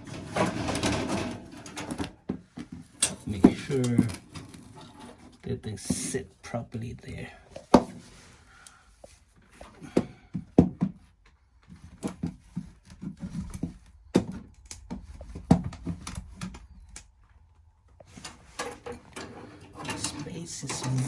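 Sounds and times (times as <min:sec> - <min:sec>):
metal parts knocking and scraping: 0:00.0 - 0:02.2, 0:18.1 - 0:21.0.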